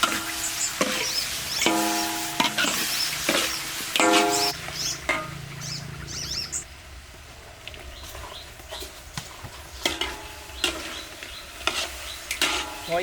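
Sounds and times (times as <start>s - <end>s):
utensil stirring and clinking in pan: 0.0s - 5.4s, 9.8s - 13.0s
high chirps: 0.0s - 6.6s
light sizzle: 0.0s - 13.0s.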